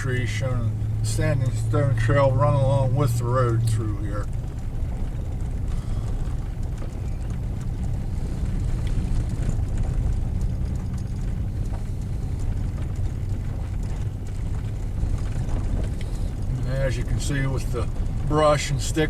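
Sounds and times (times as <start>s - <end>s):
truck engine drone: 0.0s - 19.0s
faint knocks and ticks: 4.2s - 18.4s.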